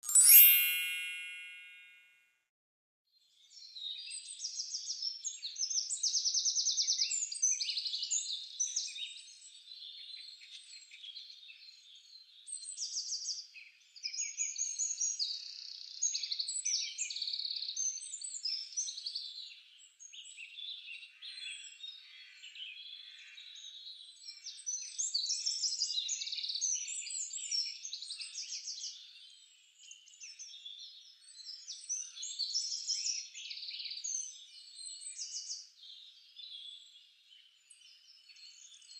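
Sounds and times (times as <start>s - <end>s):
small birds chirping: 3.4s - 38.9s.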